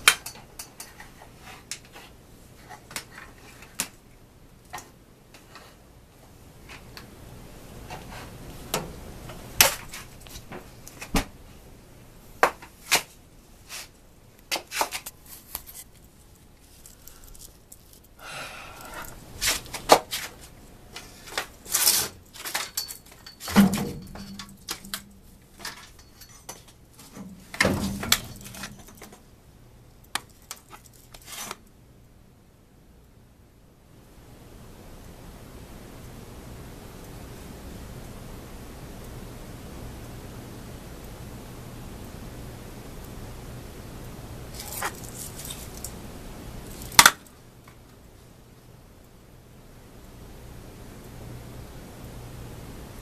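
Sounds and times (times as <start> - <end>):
small objects clicking and rustling: 14.4 - 18.2, 18.8 - 29.2, 30.1 - 31.6, 44.5 - 46.0, 46.6 - 47.3.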